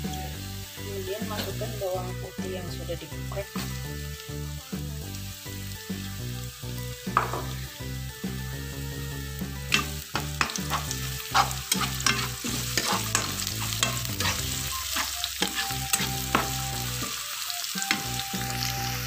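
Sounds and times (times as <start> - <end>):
shallots sizzling in hot oil: 0.0 - 19.0
metal spatula scraping a wok: 9.7 - 17.2.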